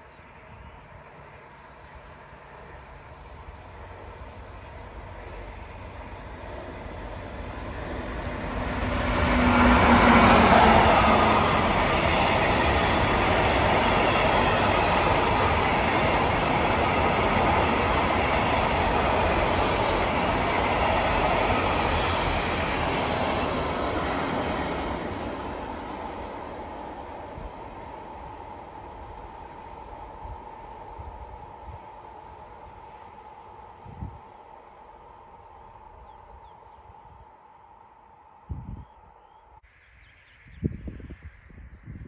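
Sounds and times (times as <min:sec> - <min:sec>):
wagons rumbling over rails: 0:02.9 - 0:32.1.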